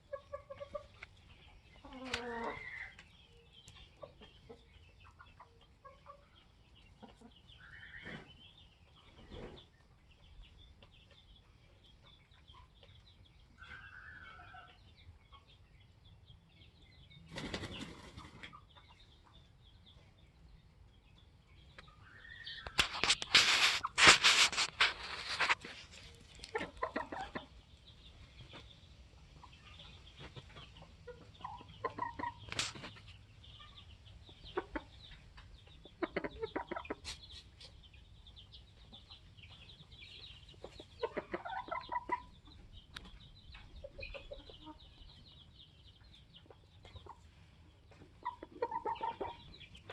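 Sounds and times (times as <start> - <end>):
chickens clucking: 0.0 - 49.9
chickens flapping wings: 17.3 - 18.5.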